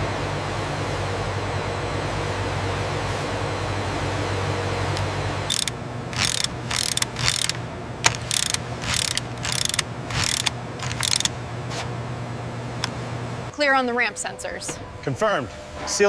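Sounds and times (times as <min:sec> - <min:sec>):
factory machinery hum: 0:00.0 - 0:16.0
mechanical clacks: 0:05.5 - 0:11.3.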